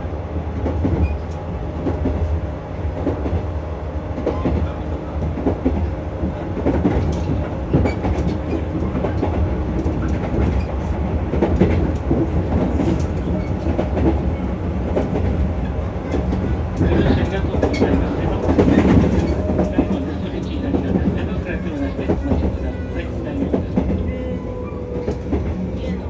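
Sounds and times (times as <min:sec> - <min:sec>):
train wheels rumbling on rail: 0:00.0 - 0:26.0
rail-joint clicks: 0:05.2 - 0:26.0.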